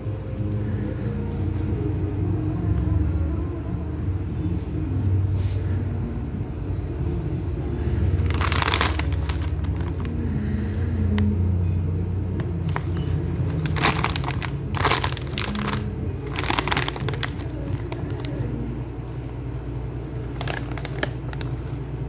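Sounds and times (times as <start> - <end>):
steady low hum: 0.0 - 22.0
plastic packaging crinkling: 8.2 - 10.2, 12.6 - 18.5, 20.0 - 21.9.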